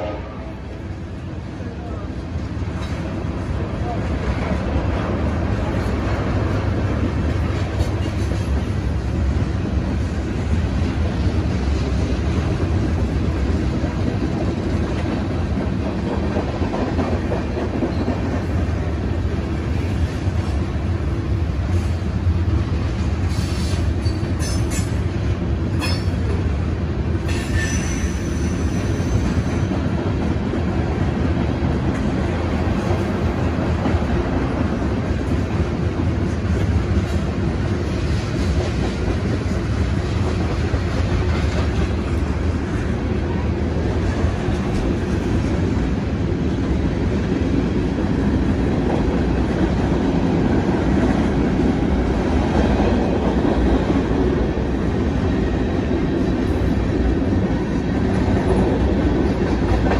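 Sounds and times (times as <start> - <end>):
clickety-clack of rail joints: 0.0 - 59.9
train wheels rumbling on rail: 0.0 - 59.9
high wheel squeal: 27.3 - 29.6.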